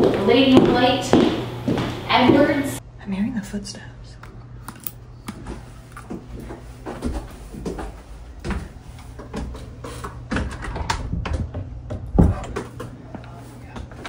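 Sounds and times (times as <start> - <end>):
footsteps and thumps dancing: 0.0 - 2.6.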